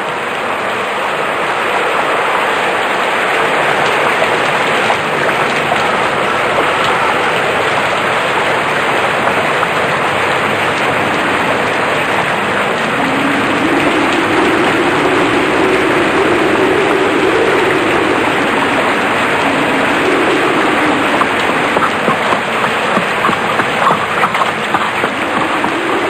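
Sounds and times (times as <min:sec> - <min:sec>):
heavy rain: 0:00.0 - 0:26.0
low hum: 0:11.0 - 0:26.0.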